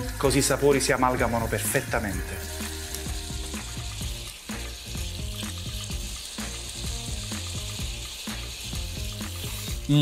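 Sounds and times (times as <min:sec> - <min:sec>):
background music with a beat: 0:00.0 - 0:10.0
food sizzling in a frying pan: 0:00.0 - 0:10.0
tongs turning food: 0:02.4 - 0:10.0.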